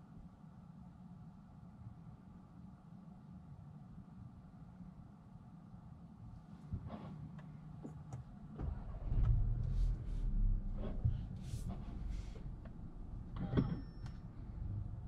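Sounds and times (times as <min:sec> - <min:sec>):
car engine starting and idling: 0:08.1 - 0:15.0.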